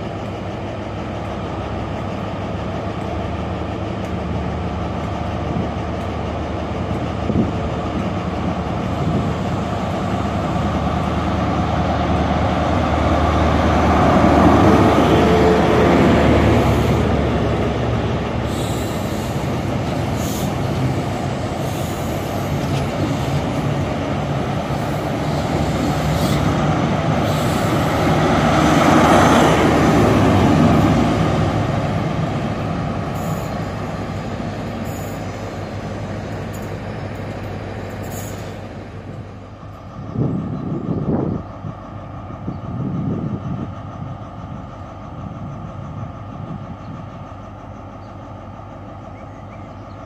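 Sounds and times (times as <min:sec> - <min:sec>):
diesel train rumble: 0:00.0 - 0:50.0
train wheel and rail noise: 0:00.0 - 0:50.0.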